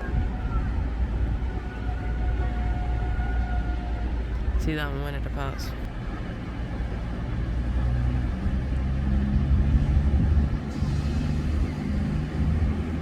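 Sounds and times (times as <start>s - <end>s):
diesel train engines rumbling: 0.0s - 13.0s.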